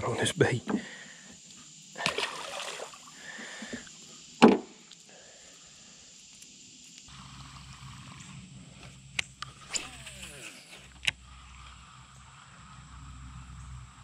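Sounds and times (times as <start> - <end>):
water sloshing: 2.0 - 3.1
fish splashing into water: 2.0 - 3.2.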